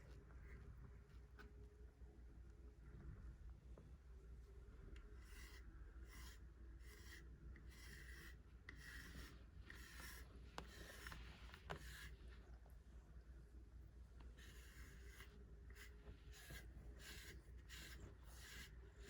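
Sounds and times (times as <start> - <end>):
brush stroking cat fur: 5.1 - 19.0.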